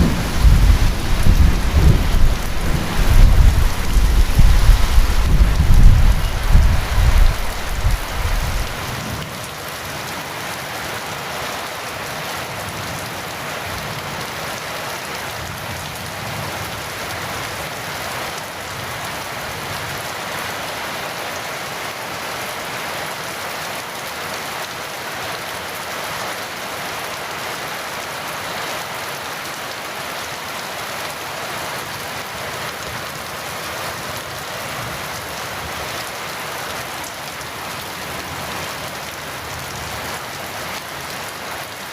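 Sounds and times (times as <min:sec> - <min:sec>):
deep thunder rumble: 0:00.0 - 0:08.9
heavy rain falling: 0:00.0 - 0:41.9.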